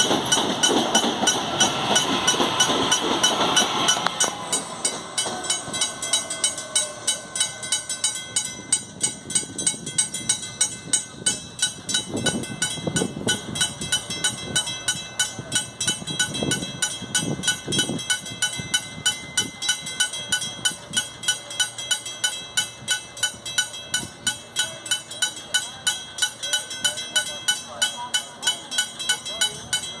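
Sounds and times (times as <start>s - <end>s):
train wheels thumping over rail joints: 0.0s - 6.9s.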